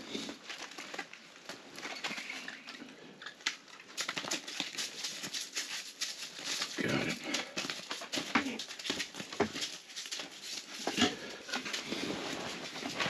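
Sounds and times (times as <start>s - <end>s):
rustling: 0.0s - 13.0s.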